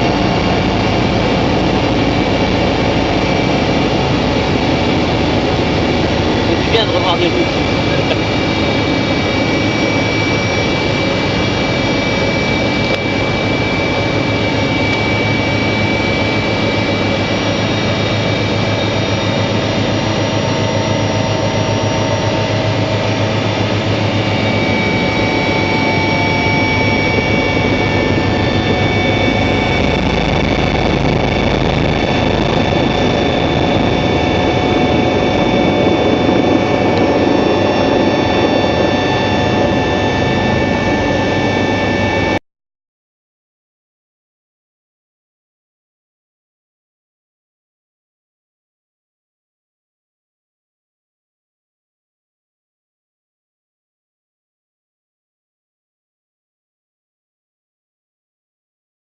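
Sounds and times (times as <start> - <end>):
helicopter engine and rotor: 0.0 - 42.4
high whine: 0.0 - 42.4.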